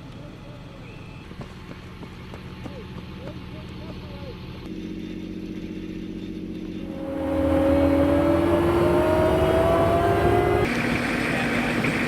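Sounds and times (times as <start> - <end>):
engine whine rising in pitch: 6.6 - 12.0.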